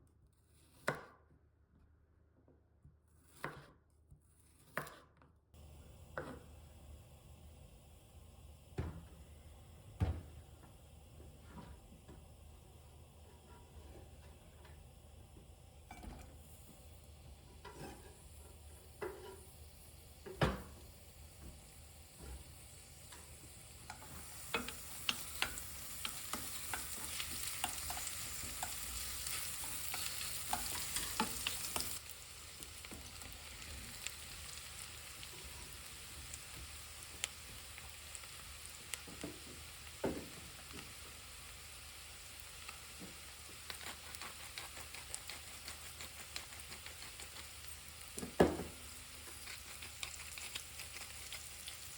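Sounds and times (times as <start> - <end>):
food sizzling in a frying pan: 5.6 - 51.9.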